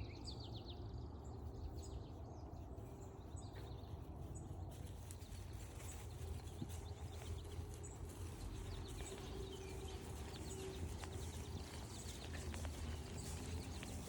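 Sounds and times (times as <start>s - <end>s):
small birds chirping: 0.0s - 14.0s
footsteps on forest trail: 4.7s - 14.0s.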